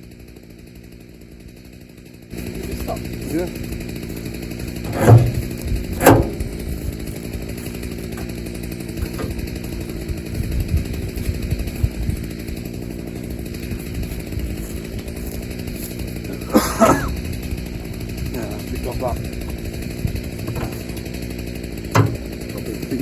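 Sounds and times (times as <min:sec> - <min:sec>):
small petrol engine running: 0:00.0 - 0:23.0
light knocks: 0:04.9 - 0:06.5, 0:20.4 - 0:21.0.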